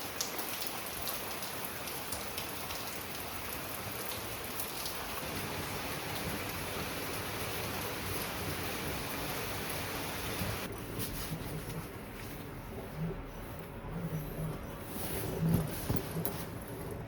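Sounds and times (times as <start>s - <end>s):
heavy rain hissing: 0.0s - 10.7s.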